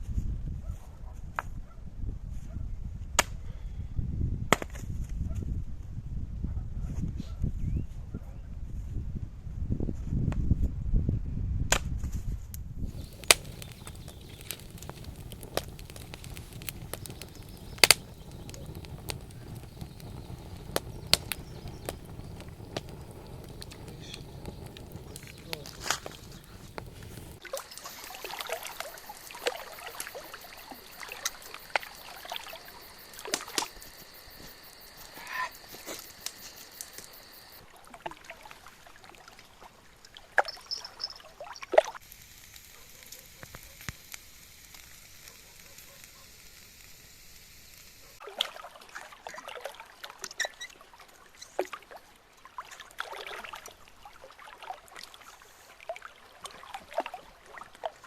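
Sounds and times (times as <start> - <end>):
water sloshing and trickling: 18.2 - 30.1, 37.6 - 42.0, 48.2 - 58.0.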